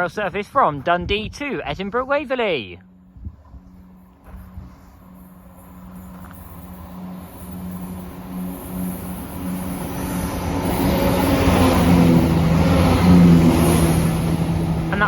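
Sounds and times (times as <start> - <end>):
diesel train engine: 2.8 - 15.0
train wheels on rails: 3.5 - 15.0.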